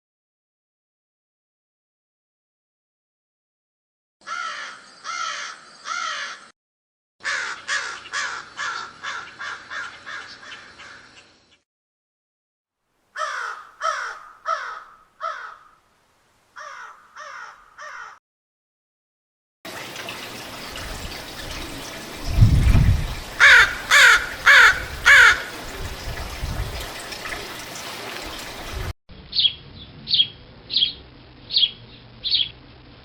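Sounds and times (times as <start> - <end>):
crow cawing: 4.2 - 6.5, 7.2 - 11.2, 13.2 - 15.9, 16.6 - 18.2, 23.4 - 25.5.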